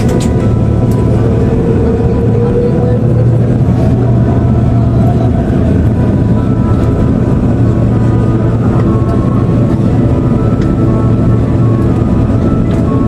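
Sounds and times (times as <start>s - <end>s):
aircraft cabin engine drone: 0.0s - 13.0s
faint steady whines: 0.0s - 13.0s.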